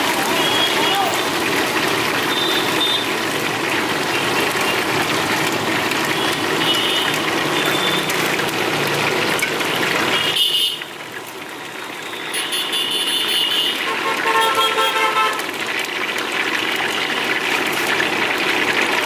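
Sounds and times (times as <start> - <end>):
chicken sizzling in a pan: 0.0 - 19.0.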